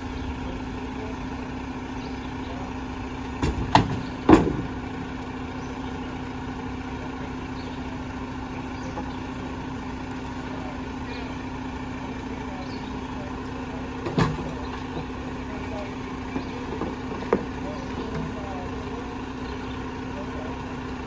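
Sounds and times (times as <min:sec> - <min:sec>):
diesel truck engine idling: 0:00.0 - 0:21.0
sharp knocks: 0:03.4 - 0:04.8.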